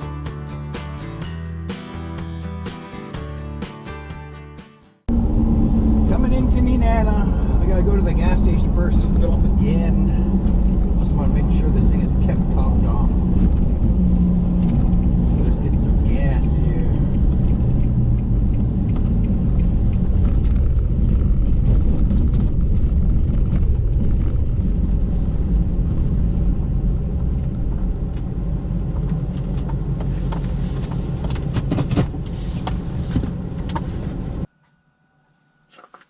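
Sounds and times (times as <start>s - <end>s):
truck engine and road rumble: 0.0s - 4.0s, 5.1s - 34.5s
clicks and ticks: 16.9s - 24.5s.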